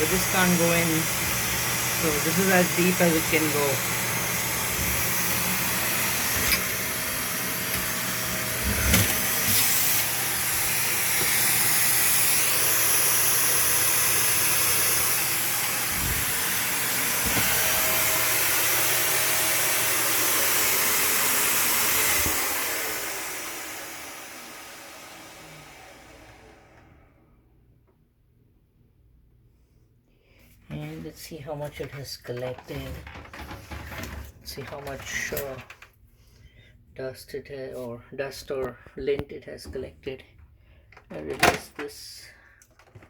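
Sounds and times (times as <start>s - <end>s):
vacuum cleaner running: 0.0s - 27.5s, 32.6s - 35.8s.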